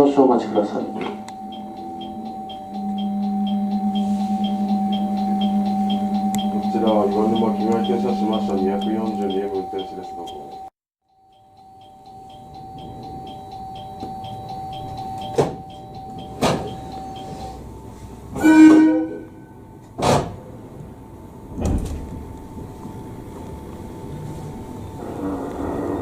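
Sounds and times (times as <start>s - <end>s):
train low hum: 0.0s - 10.7s, 11.4s - 26.0s
fast ticking: 0.0s - 17.3s
steady electronic tone: 0.0s - 26.0s.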